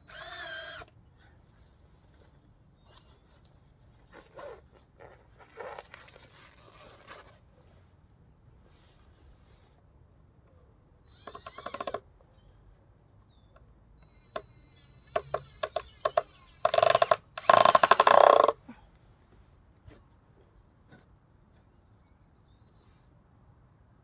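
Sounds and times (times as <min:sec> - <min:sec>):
power driver driving screws: 0:00.0 - 0:00.9, 0:11.1 - 0:12.0, 0:14.0 - 0:18.6.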